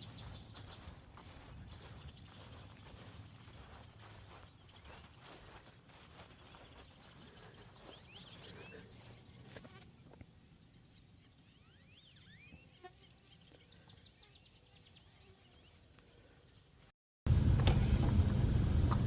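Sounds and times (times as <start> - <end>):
bird chirps and trill: 10.7 - 15.7.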